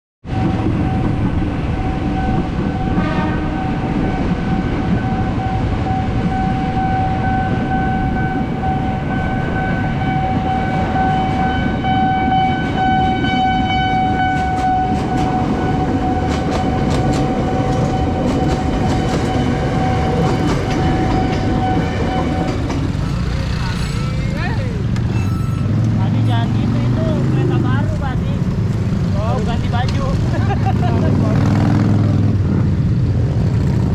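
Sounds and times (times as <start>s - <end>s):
train rumble: 0.2s - 33.9s
steady high tone: 0.3s - 27.4s.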